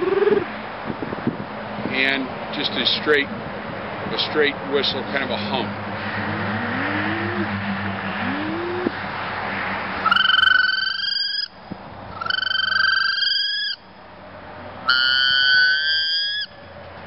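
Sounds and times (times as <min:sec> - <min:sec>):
low rising hum: 0:05.6 - 0:09.7
duck call whistles: 0:10.1 - 0:11.5, 0:12.2 - 0:13.8, 0:14.9 - 0:16.6.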